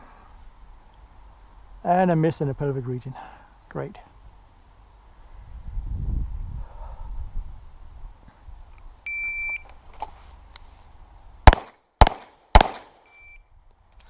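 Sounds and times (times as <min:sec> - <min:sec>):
shot timer beep: 0:09.1 - 0:09.6, 0:13.1 - 0:13.4
pistol shots: 0:11.4 - 0:13.0.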